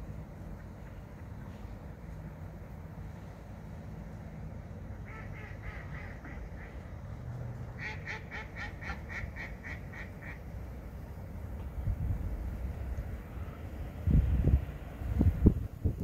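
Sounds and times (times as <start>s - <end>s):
low steady rumble: 0.0s - 16.0s
bird calling: 5.0s - 6.9s.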